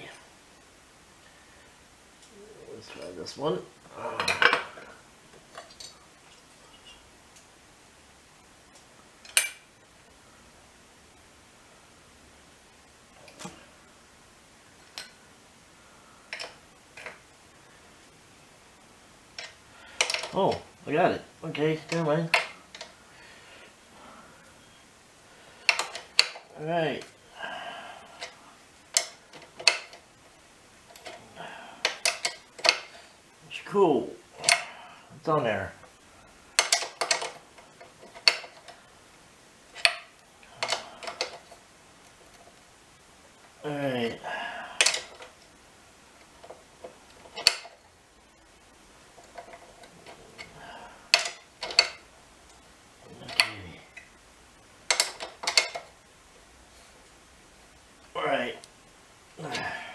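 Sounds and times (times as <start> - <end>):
hand tools clicking and knocking: 19.4 - 20.6, 25.6 - 26.5, 28.2 - 30.0, 31.8 - 33.0, 34.4 - 34.7, 36.6 - 38.8, 39.8 - 41.5, 44.8 - 45.3, 46.4 - 47.8, 49.2 - 52.0, 54.9 - 55.9.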